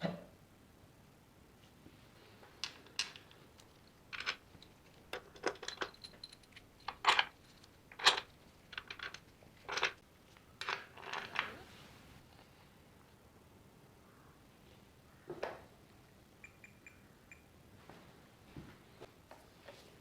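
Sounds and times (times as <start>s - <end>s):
small metal parts clinking: 2.6s - 10.0s.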